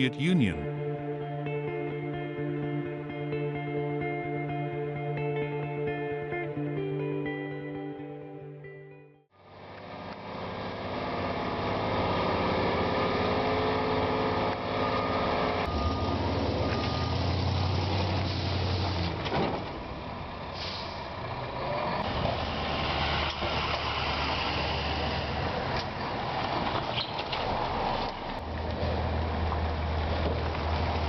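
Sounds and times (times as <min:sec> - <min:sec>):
heavy truck engine labouring: 0:09.5 - 0:31.0.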